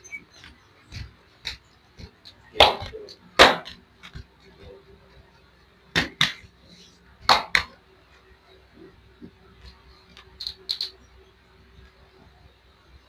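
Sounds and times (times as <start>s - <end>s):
hands slapping skin: 0.9s - 4.3s, 5.9s - 6.5s, 7.2s - 7.8s.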